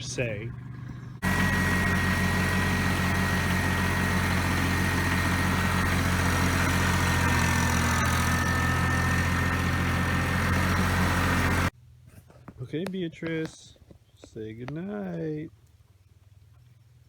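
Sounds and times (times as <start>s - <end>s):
engine idling: 0.0s - 11.7s.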